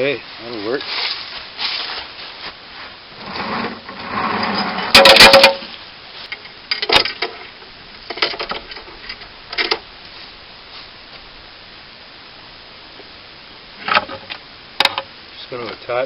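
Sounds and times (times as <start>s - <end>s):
metal chain clanking and rattling: 4.1s - 5.7s.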